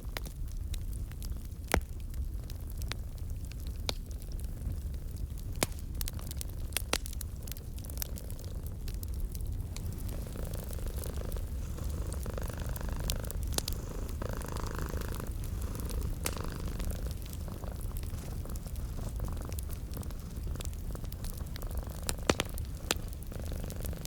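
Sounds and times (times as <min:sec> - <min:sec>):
wood fire crackling: 0:00.0 - 0:24.0
cat purring: 0:07.4 - 0:24.0.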